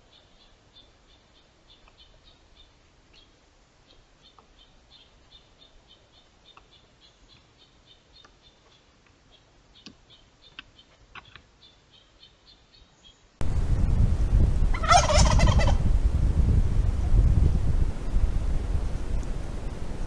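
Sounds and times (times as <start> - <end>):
small bird chirping: 0.0 - 13.4.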